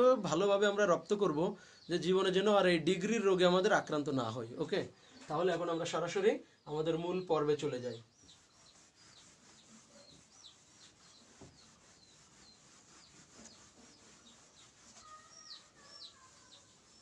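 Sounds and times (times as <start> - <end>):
high bird chirps: 7.8 - 17.0.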